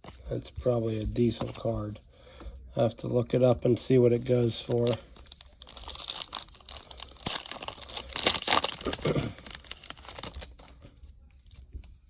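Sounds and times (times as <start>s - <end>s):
foil wrapper crinkling and tearing: 4.4s - 10.8s.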